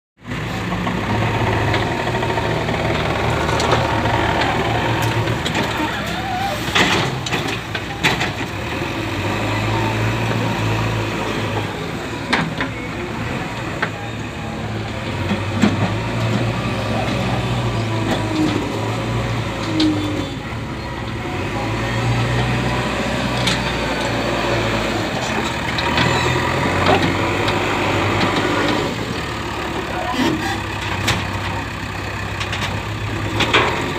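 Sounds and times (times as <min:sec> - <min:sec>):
diesel engine under load: 0:00.2 - 0:33.9.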